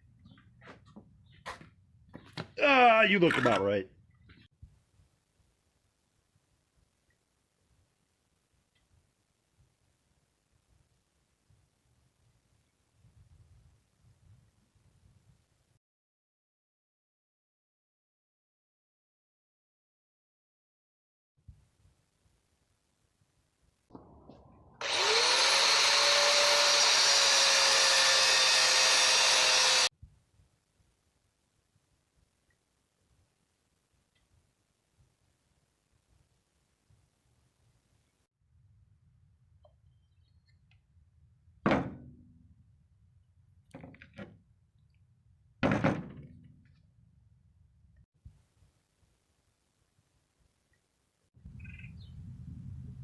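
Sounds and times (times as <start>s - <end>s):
power tool motor whining: 24.8s - 29.9s.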